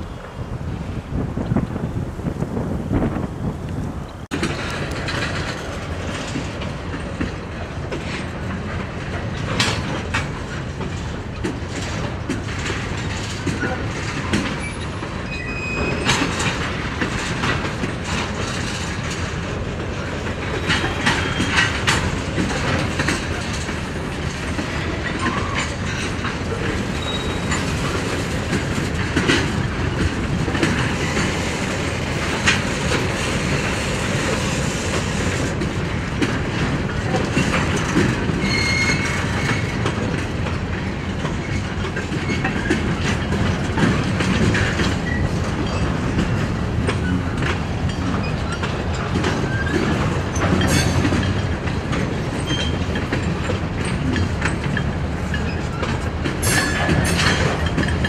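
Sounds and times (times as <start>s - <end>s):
freight train wheels rumbling on rail: 0.0s - 58.0s
wheels clacking over rail joints: 0.0s - 58.0s
high wheel squeals: 14.6s - 16.1s, 26.9s - 27.8s, 38.4s - 39.8s.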